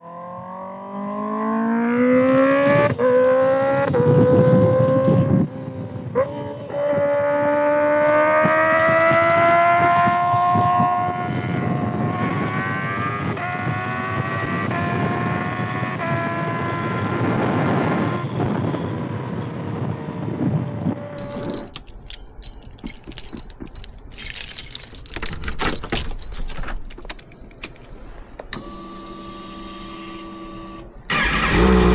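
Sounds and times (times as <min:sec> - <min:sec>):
motorcycle engine accelerating: 0:28.5 - 0:31.9.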